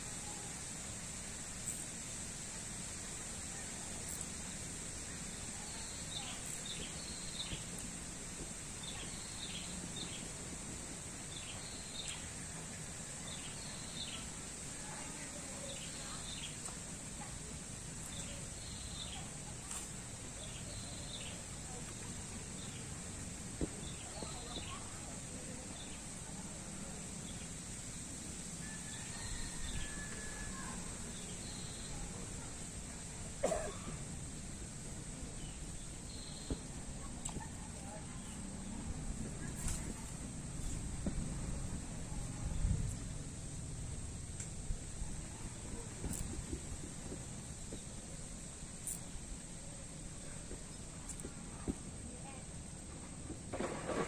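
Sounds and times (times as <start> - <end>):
steady hiss: 0.0 - 54.0.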